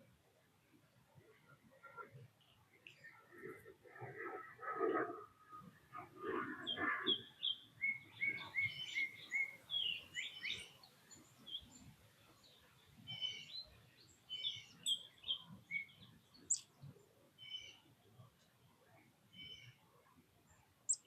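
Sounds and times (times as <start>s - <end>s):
birds chirping and calling: 6.3s - 10.8s, 14.3s - 16.7s.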